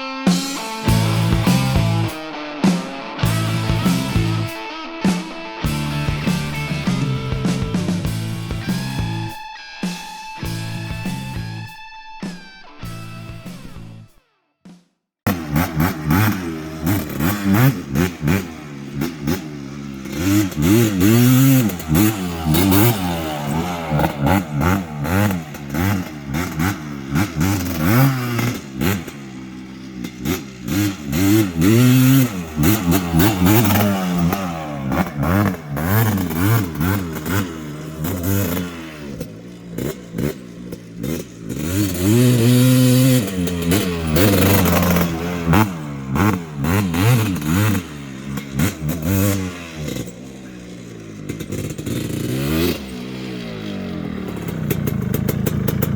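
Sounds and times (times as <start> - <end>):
quad engine revving: 0.0 - 9.4, 10.4 - 11.7, 15.3 - 55.9.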